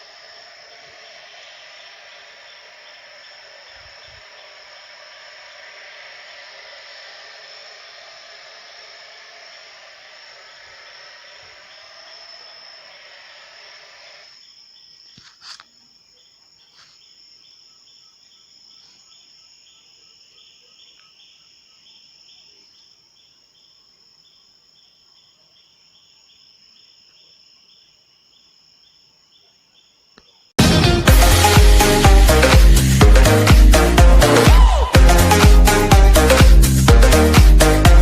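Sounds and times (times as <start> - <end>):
static hiss: 0.0 - 14.4
high-pitched insect buzz: 0.0 - 15.7
crickets chirping: 0.0 - 30.5.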